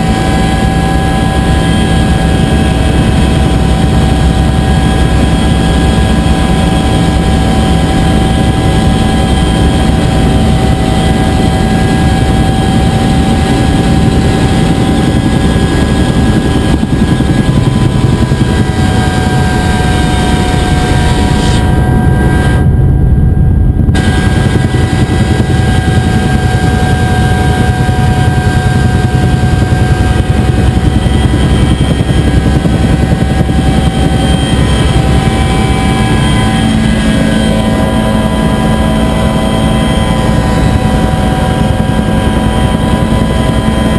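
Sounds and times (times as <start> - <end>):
helicopter engine and rotor drone: 0.0 - 43.9.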